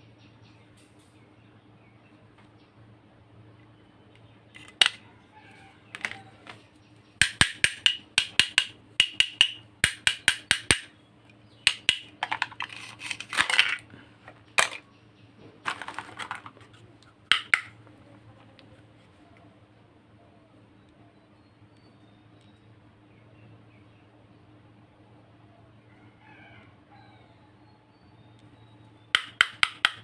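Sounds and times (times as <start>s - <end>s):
plastic toy pieces clicking: 4.6s - 5.0s, 6.0s - 6.6s, 7.2s - 10.9s, 11.7s - 13.8s, 15.7s - 16.7s, 17.3s - 17.7s, 29.2s - 30.0s.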